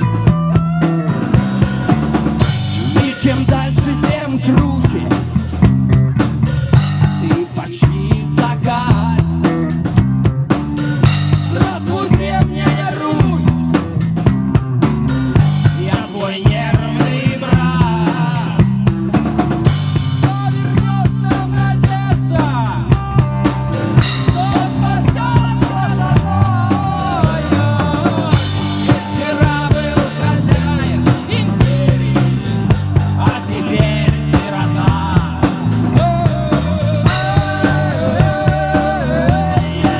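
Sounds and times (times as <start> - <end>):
drum kit steady beat: 0.0 - 39.9
rock band playing: 0.0 - 39.9.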